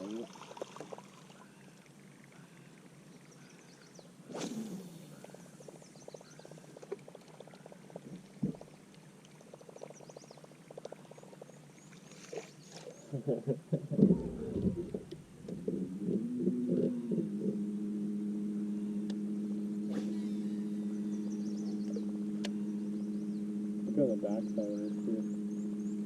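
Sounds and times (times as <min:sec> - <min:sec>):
faint bird chirps: 0:01.4 - 0:08.1, 0:09.4 - 0:13.4, 0:18.6 - 0:26.0
fishing cast whoosh: 0:04.3 - 0:05.1, 0:19.8 - 0:20.6
reel spool whirring: 0:14.8 - 0:26.0.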